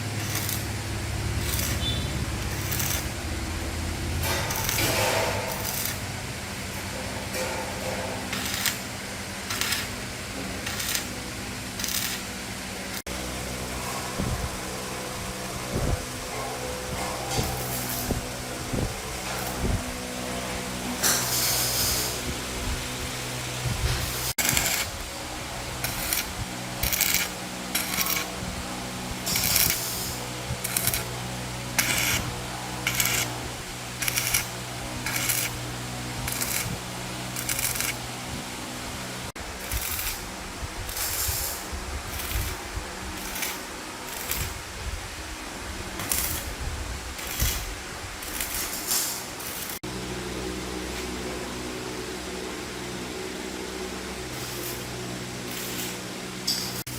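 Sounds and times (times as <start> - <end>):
steady low hum: 0.0 - 56.9
short metallic strokes: 1.4 - 3.2, 20.4 - 22.3, 25.6 - 38.4.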